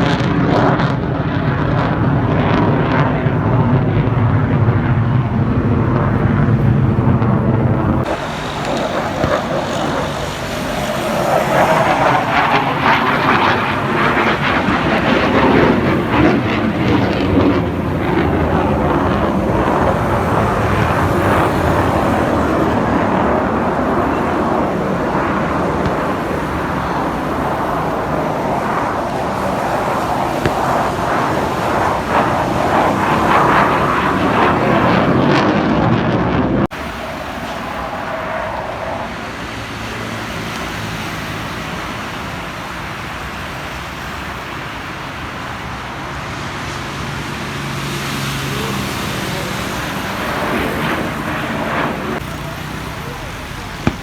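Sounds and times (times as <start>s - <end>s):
background rumble: 0.0s - 40.5s
jet engine rush: 0.0s - 54.0s.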